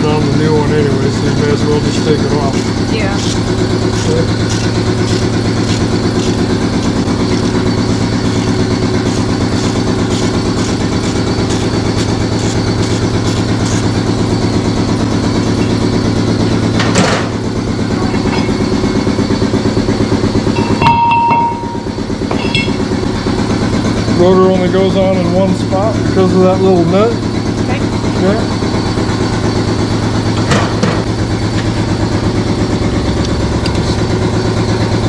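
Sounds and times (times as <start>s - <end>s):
air compressor pulsing drone: 0.0s - 35.0s
brief metallic ring: 20.6s - 22.8s
sharp metallic knock: 20.6s - 22.8s.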